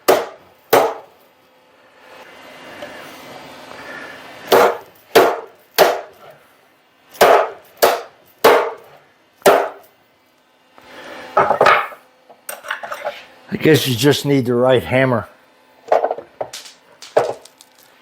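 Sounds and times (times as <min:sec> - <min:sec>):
hammer strikes on metal: 0:00.0 - 0:01.1, 0:04.5 - 0:06.2, 0:07.2 - 0:08.8, 0:09.4 - 0:09.9.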